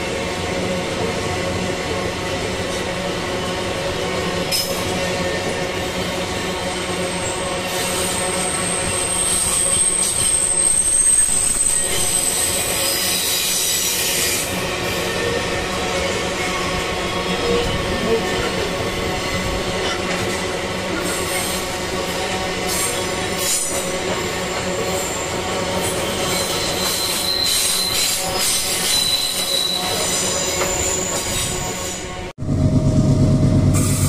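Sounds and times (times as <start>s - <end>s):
freight train rumbling past: 0.0s - 34.0s
high-pitched wheel squeal: 7.2s - 14.5s, 24.5s - 32.1s.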